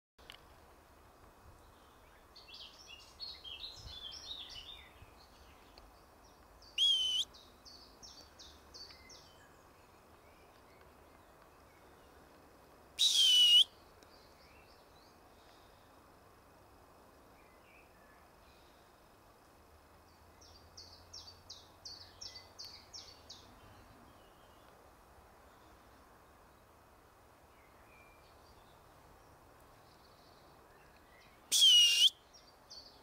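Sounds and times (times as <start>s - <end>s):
songbirds chirping: 0.2s - 33.0s
loud short bird whistle: 6.8s - 7.3s, 13.0s - 13.7s, 31.5s - 32.2s.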